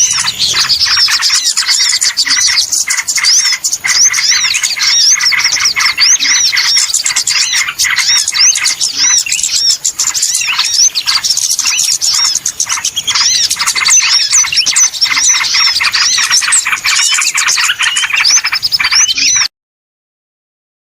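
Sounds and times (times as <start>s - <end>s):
many small birds chattering: 0.0s - 19.5s.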